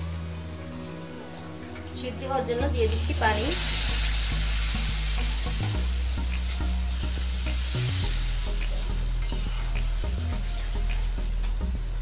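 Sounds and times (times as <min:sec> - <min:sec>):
food sizzling in a pan: 0:00.1 - 0:12.0
metal spatula scraping a pan: 0:09.2 - 0:09.8.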